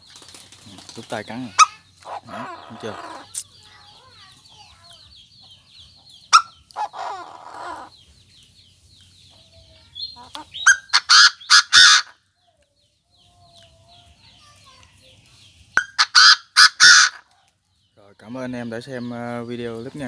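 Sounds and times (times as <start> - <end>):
francolin harsh calls: 1.2 - 5.6, 9.9 - 12.1, 15.8 - 17.2.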